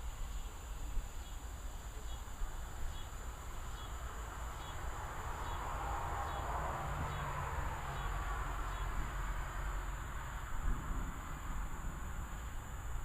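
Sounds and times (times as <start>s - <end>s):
high insect drone: 0.0s - 13.0s
insect chirping: 0.0s - 13.0s
distant thunder rumbling: 10.6s - 12.6s.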